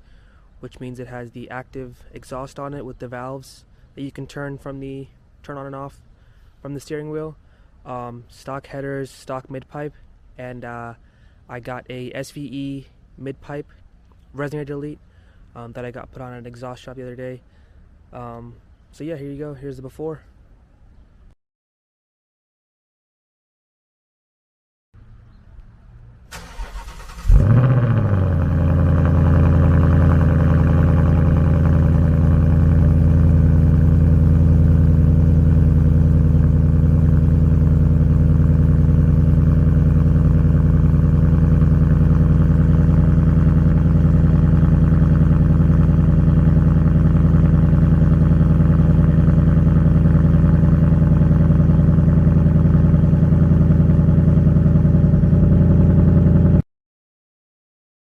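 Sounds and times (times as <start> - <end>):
car engine revving and idling: 26.4 - 56.6.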